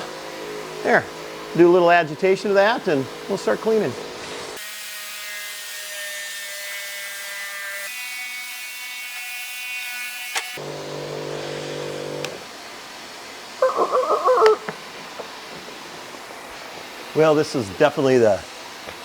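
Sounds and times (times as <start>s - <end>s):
electric sprayer pump whining: 10.3s - 12.6s.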